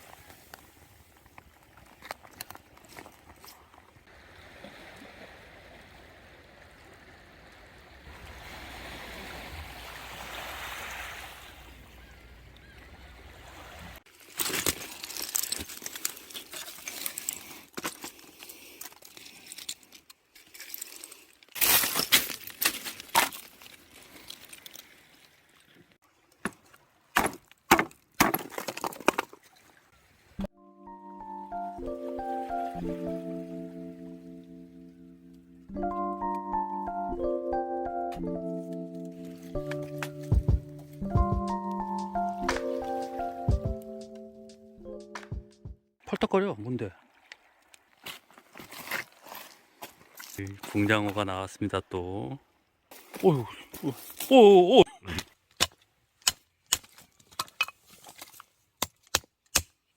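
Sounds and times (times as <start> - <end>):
water sloshing and splashing: 0.0 - 30.5, 46.8 - 51.3.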